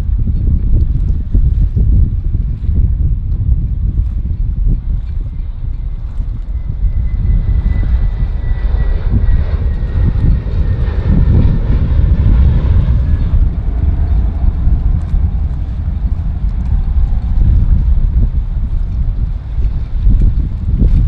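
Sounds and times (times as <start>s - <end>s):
jet engines rumbling: 0.0s - 21.0s
wind buffeting microphone: 0.0s - 21.0s
high engine whine: 5.0s - 21.0s.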